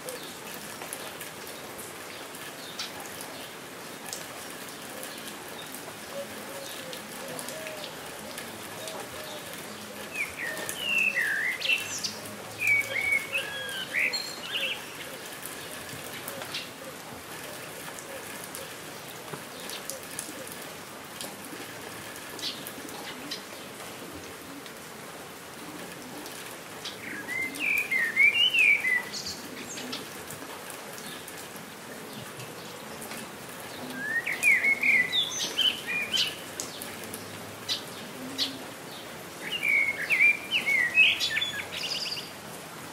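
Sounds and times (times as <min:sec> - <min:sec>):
steady rain on foliage: 0:00.0 - 0:42.9
songbird twittering chirps: 0:10.2 - 0:15.0.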